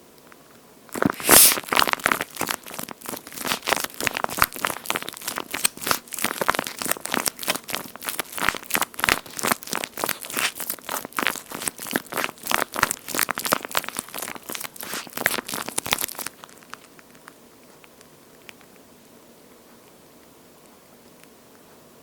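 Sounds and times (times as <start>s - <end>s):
squishy toy squelching: 0.9s - 18.8s.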